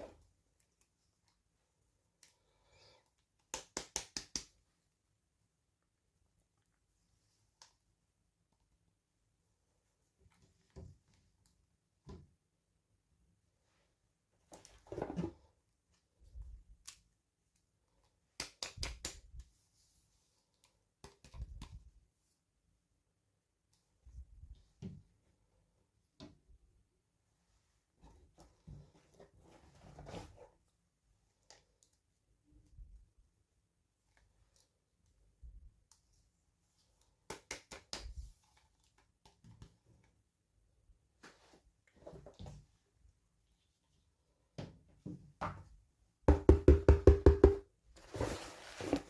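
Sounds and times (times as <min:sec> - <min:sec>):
plastic toys and packaging handled: 0:34.0 - 0:40.2, 0:47.8 - 0:49.0.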